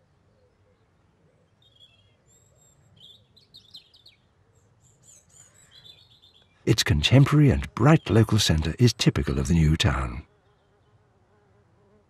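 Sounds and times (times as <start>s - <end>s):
faint birdsong: 0.0s - 8.6s.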